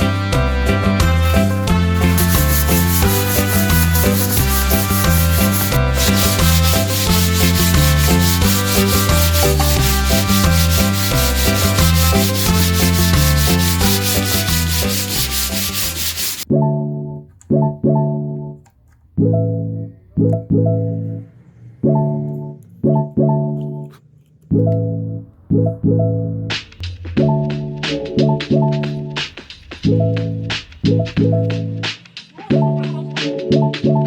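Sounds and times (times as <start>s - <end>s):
background music with bass line: 0.0s - 18.6s, 24.6s - 34.0s
sanding rasp: 1.2s - 16.4s.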